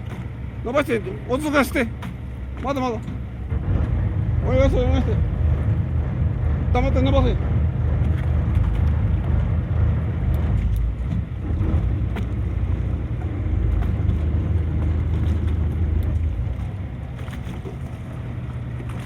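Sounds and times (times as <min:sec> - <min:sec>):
boat engine rumbling: 0:00.0 - 0:19.0.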